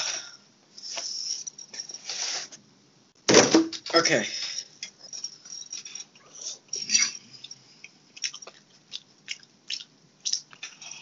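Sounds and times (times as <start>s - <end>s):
person chewing food: 6.2s - 11.0s.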